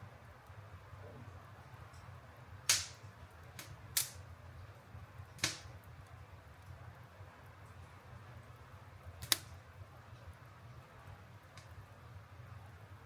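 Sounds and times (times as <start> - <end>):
small fire crackles: 0.0 - 13.0
wood fire snapping: 1.9 - 12.3.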